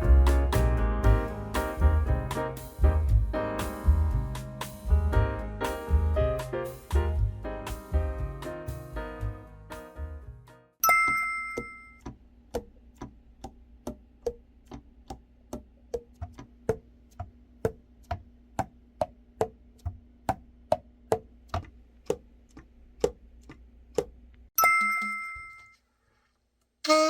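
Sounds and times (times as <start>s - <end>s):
bell-like chime: 10.8s - 12.0s, 24.6s - 25.8s
clock ticking: 21.1s - 25.6s.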